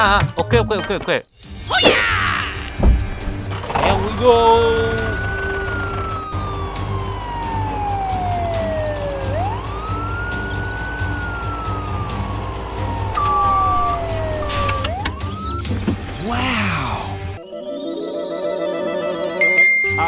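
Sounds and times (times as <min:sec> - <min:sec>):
police siren wailing: 0:04.2 - 0:17.2.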